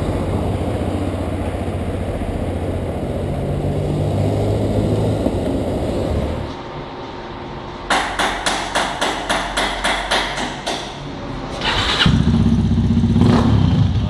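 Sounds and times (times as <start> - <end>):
motorcycle engine idling: 0.0 - 4.0, 12.1 - 14.0
motorcycle engine starter cranking: 11.6 - 12.3.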